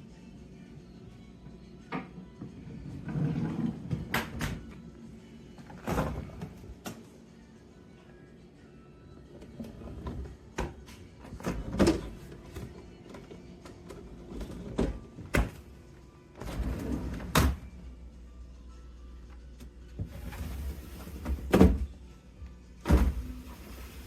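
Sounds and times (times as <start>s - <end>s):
background music: 0.0s - 24.0s
refrigerator doors and drawers thunking: 5.7s - 6.9s, 9.6s - 13.2s, 14.0s - 15.8s, 16.4s - 17.7s, 20.0s - 22.0s, 22.8s - 24.0s.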